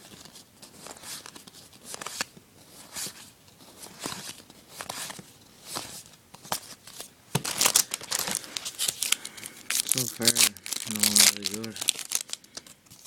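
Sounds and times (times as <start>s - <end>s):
trading cards flipped through: 0.1s - 13.0s
pack wrapper crinkling: 7.4s - 13.0s.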